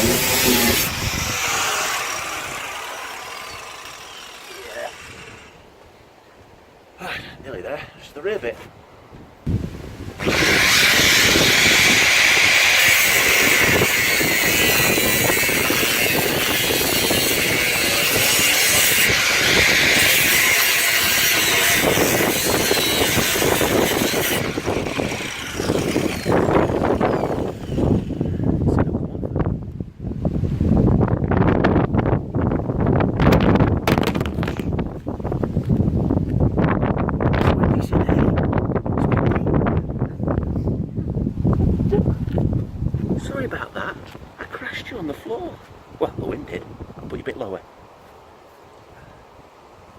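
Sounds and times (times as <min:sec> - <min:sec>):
wind buffeting microphone: 0:00.0 - 0:04.3, 0:08.6 - 0:48.0
power tool cutting sheet steel: 0:00.0 - 0:05.6, 0:10.2 - 0:28.2.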